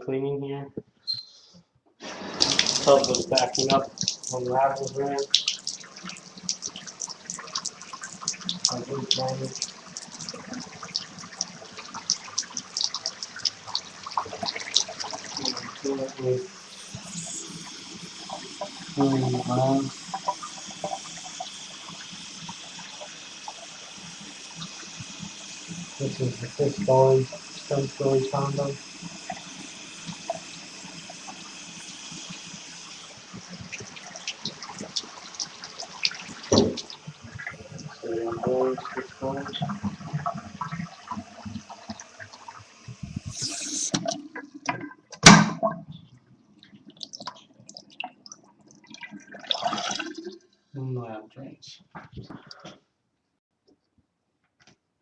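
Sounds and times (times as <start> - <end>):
water running from tap: 2.0 - 44.8, 46.9 - 50.4
splashes and clicks: 2.1 - 16.3, 33.3 - 37.9, 46.6 - 50.4
water drips: 2.1 - 45.0, 45.6 - 50.6.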